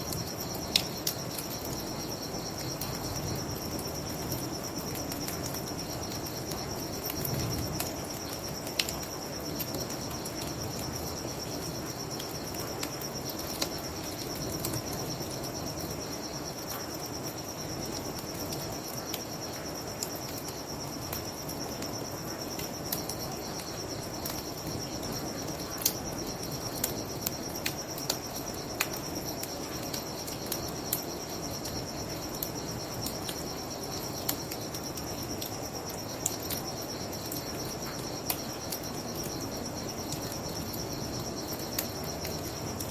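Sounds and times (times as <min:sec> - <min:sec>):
bonfire wood crackling and popping: 0:00.0 - 0:16.2
crickets chirping: 0:00.0 - 0:42.9.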